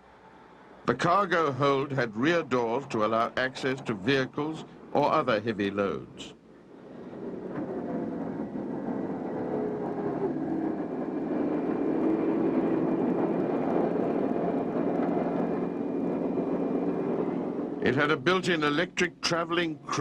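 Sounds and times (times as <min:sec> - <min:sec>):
aircraft engines droning: 0:00.0 - 0:20.0
faint whining tone: 0:06.3 - 0:17.9.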